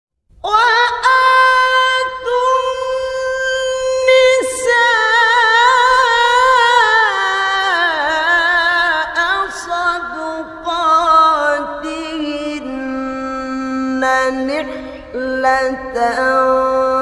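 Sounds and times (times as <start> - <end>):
man chanting recitation: 0.5 - 17.0.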